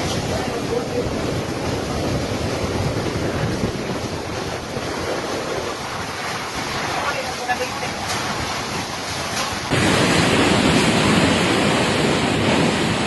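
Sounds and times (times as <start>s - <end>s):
strong wind rushing: 0.0s - 13.0s
wind buffeting microphone: 0.0s - 13.0s.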